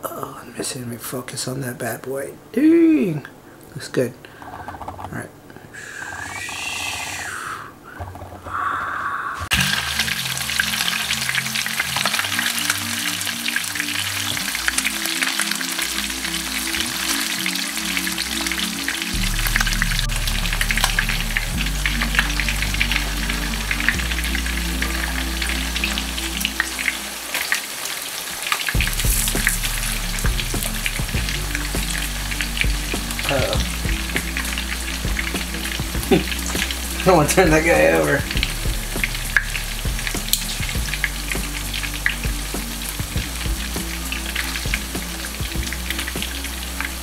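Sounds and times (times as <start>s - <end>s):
fish cakes sizzling in hot oil: 9.5s - 47.0s.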